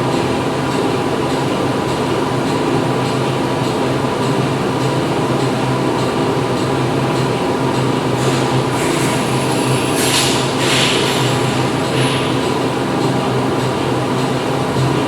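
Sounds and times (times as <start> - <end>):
machinery humming: 4.0 - 15.0.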